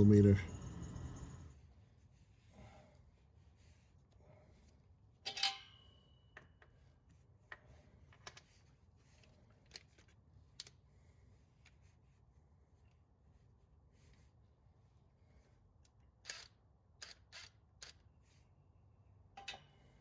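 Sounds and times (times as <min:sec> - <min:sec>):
metal tool clanking: 0:05.3 - 0:06.7, 0:19.4 - 0:19.8.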